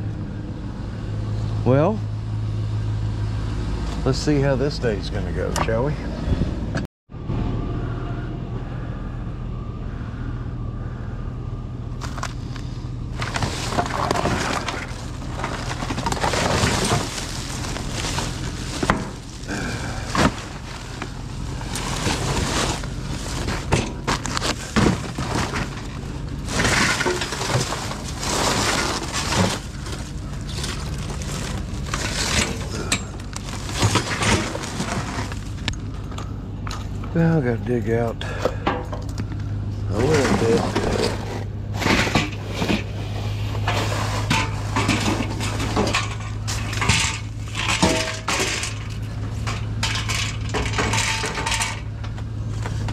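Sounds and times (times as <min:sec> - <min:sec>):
steady low hum: 0:00.0 - 0:52.9
snow and ice scraping: 0:12.0 - 0:35.7, 0:39.9 - 0:49.0.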